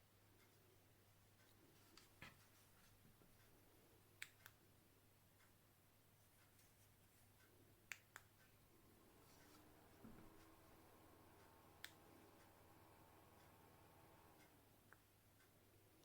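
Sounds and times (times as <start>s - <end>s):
faint low hum: 0.0s - 16.0s
faint clicks: 6.3s - 16.0s.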